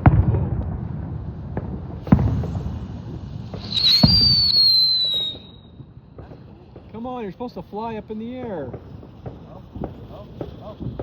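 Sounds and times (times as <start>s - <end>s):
sharp firework cracks: 0.0s - 11.0s
firework spraying hiss: 0.7s - 11.0s
high falling whistle: 3.6s - 5.8s.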